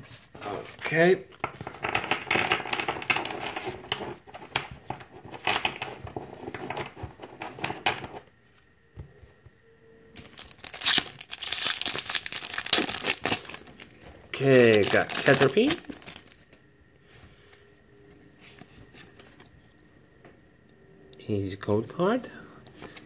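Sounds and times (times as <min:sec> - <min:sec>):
foil pack crinkling and tearing: 0:10.2 - 0:16.4.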